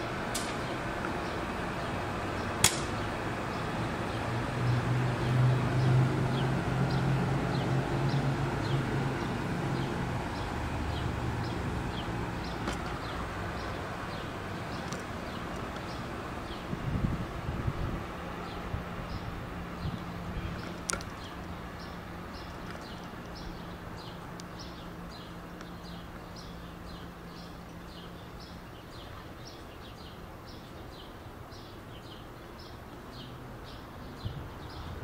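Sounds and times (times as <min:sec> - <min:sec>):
train engine hum: 0:00.0 - 0:28.3
wheel-on-rail rumble: 0:00.0 - 0:31.1
sharp click: 0:00.3 - 0:00.6, 0:02.6 - 0:03.0.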